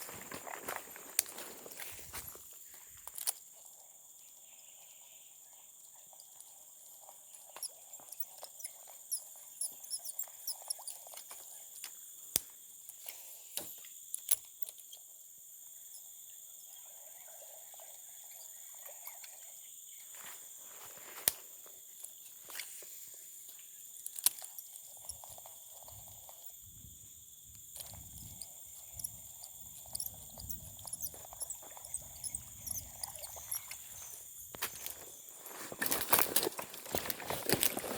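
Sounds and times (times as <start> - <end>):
insects chirring: 0.0 - 37.9.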